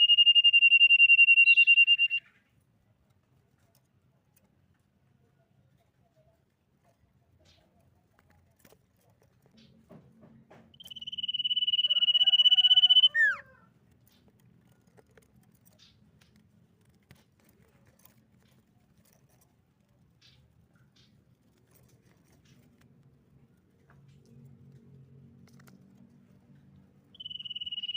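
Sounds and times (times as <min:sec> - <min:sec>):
bird whistling: 0:00.0 - 0:02.3, 0:10.8 - 0:13.4, 0:27.2 - 0:27.9.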